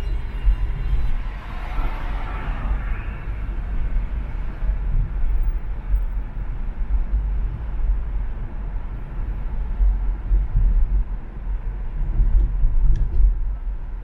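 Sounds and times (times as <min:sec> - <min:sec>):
car road and wind rumble: 0:00.0 - 0:14.0.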